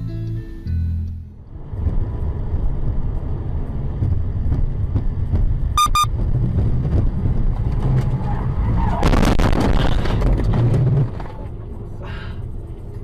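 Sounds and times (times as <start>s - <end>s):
car engine and road noise: 0.0s - 13.0s
short high beeps: 5.8s - 6.1s.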